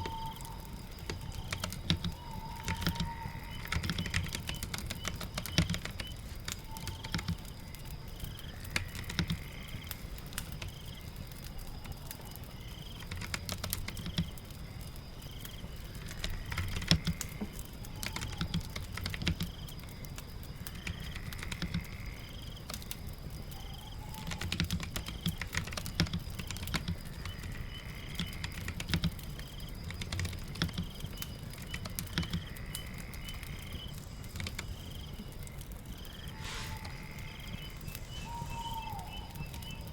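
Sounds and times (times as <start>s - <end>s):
keyboard typing: 0.0s - 7.4s, 24.3s - 27.4s, 28.2s - 29.2s, 29.8s - 32.5s, 34.3s - 35.0s
rain patter: 0.0s - 39.9s.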